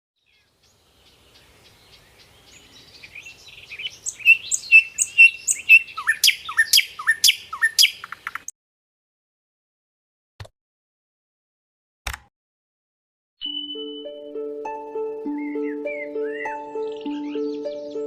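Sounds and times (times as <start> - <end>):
small pet birds chirping: 0.2 - 8.5, 13.4 - 14.1, 15.3 - 18.0
sharp downward-sweeping bird calls: 2.6 - 8.5, 13.4 - 18.0.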